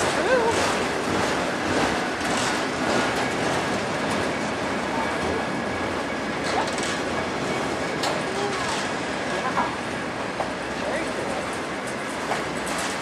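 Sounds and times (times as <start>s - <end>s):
steel wheels rolling on rails: 0.0s - 13.0s.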